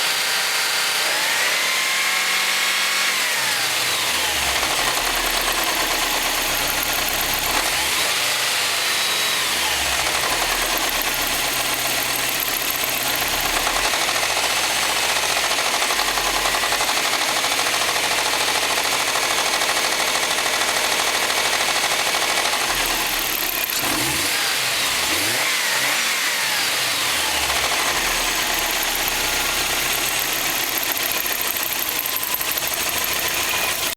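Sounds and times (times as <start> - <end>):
engine knocking: 4.0 - 8.1, 9.7 - 25.3, 27.2 - 33.9
car engine revving: 21.5 - 33.9.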